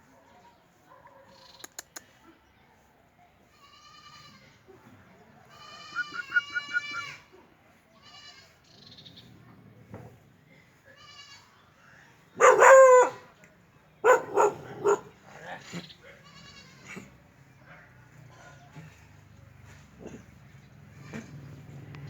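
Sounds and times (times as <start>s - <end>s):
quick clicks: 1.6s - 2.2s
dog yelps: 12.4s - 13.2s, 14.0s - 15.1s.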